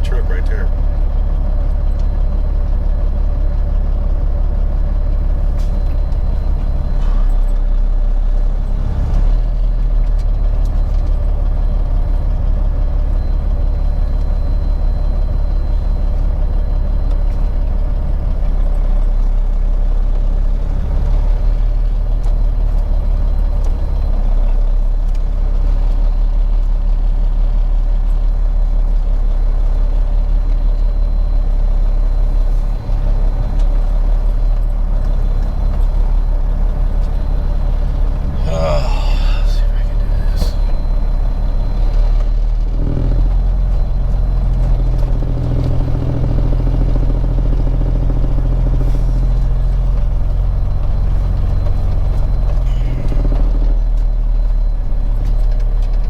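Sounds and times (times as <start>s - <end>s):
truck diesel engine droning: 0.0s - 56.0s.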